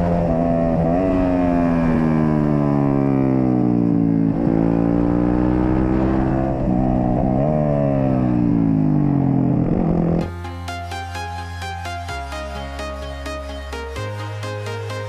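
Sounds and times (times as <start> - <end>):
sport bike engine shifting gears: 0.0 - 10.3
electronic music with steady beat: 10.2 - 15.0.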